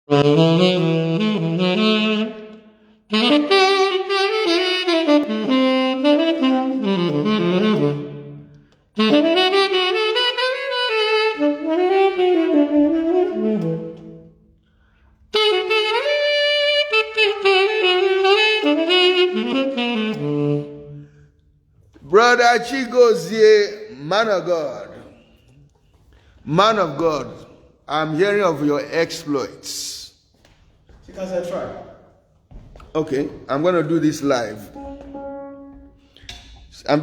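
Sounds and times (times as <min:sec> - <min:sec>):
solo saxophone jazzy melody: 0:00.0 - 0:23.4, 0:33.1 - 0:36.5.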